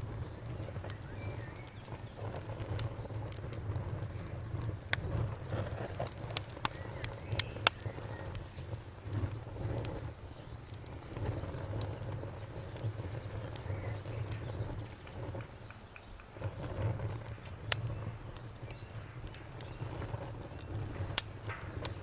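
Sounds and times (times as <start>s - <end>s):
campfire crackling: 0.0s - 22.0s
crickets chirping: 0.0s - 22.0s
frogs croaking: 6.4s - 22.0s.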